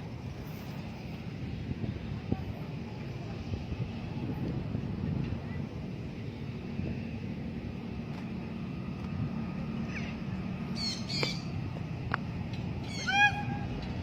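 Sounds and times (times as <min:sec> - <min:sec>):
parrot squawking: 0:10.8 - 0:11.5, 0:12.8 - 0:13.5.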